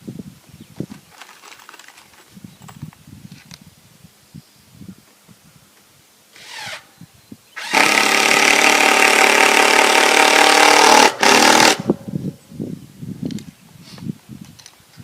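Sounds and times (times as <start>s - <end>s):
handheld power tool running: 7.6s - 11.9s.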